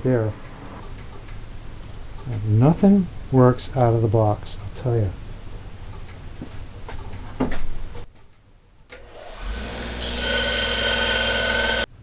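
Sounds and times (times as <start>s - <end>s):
electric grinder whining: 9.0s - 11.9s.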